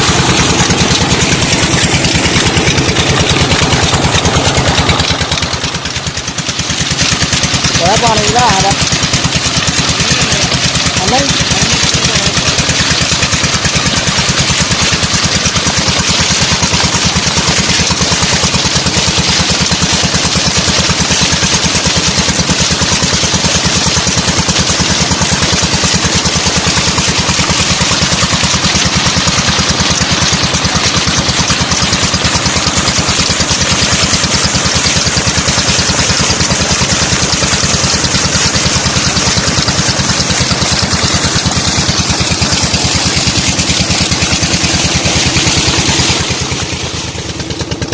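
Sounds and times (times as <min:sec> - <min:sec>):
single-cylinder diesel engine running: 0:00.0 - 0:47.9.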